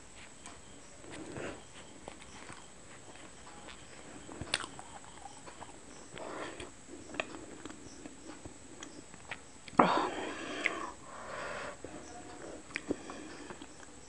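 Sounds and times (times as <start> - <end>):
chewing with mouth clicks: 0.2 - 9.8, 12.3 - 14.0
lip smacks: 10.6 - 11.0.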